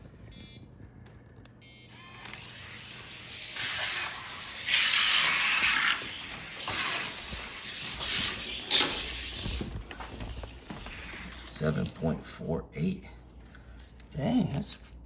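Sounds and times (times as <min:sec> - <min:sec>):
toy car wheels rolling hiss: 0:02.3 - 0:10.2.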